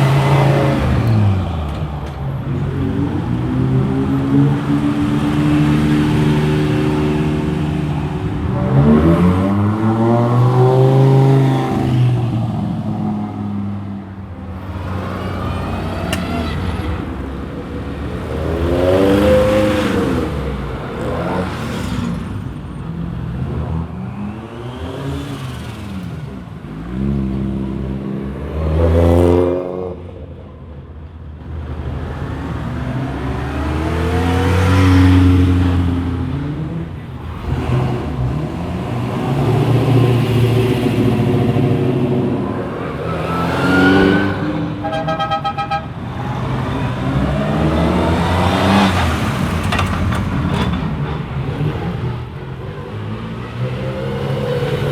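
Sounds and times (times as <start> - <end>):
rally cars driving past: 0.0 - 30.2, 31.8 - 54.9.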